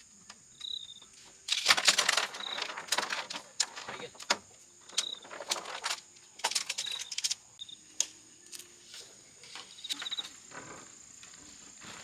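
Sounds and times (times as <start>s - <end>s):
insects droning: 0.0s - 12.0s
tent poles clattering: 1.5s - 7.4s, 9.4s - 10.9s.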